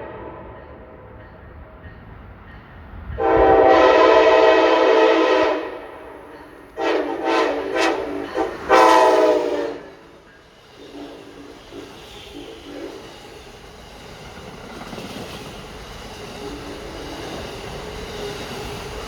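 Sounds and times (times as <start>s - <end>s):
train air horn: 0.0s - 1.0s, 3.2s - 10.2s.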